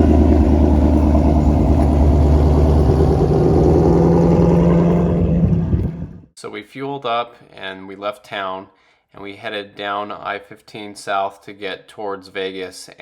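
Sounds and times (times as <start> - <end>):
car engine running loud: 0.0 - 6.3.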